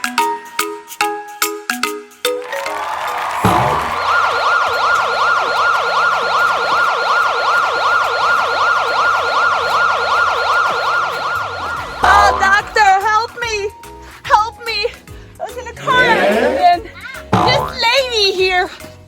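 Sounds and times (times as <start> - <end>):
siren yelping: 3.4 - 12.8.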